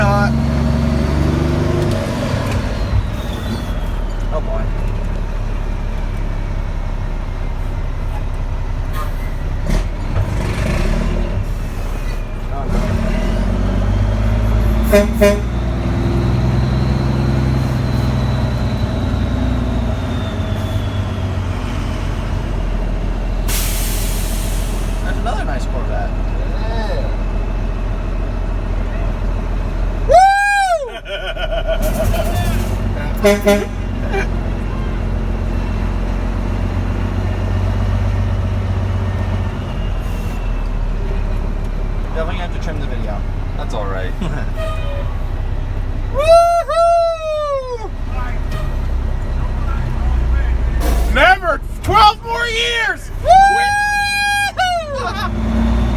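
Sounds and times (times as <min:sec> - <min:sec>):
diesel engine drone: 0:00.0 - 0:55.9
truck horn toots: 0:14.5 - 0:16.6, 0:32.5 - 0:35.4, 0:44.2 - 0:45.5, 0:48.2 - 0:50.0.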